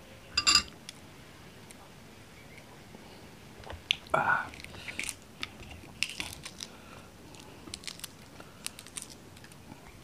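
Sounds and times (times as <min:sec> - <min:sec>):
eggshell crackling: 0:03.9 - 0:10.0.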